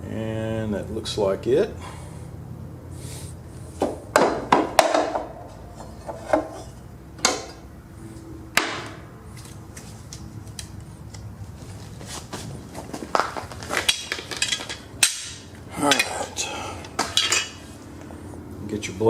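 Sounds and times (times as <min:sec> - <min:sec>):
metal blades clanking on mower deck: 0:13.8 - 0:17.6.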